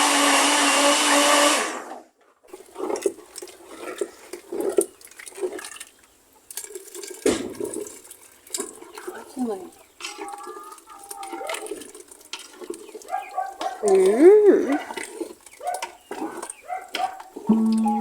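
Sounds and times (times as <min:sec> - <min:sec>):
electric blender humming: 0:00.0 - 0:01.8.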